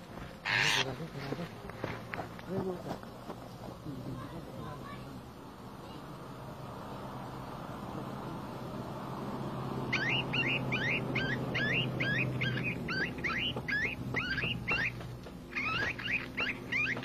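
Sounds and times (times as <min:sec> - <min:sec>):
small bird chirping: 0:09.8 - 0:17.0.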